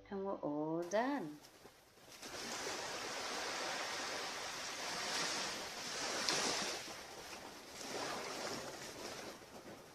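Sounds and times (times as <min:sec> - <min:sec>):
surf washing onto beach: 0:02.1 - 0:09.9.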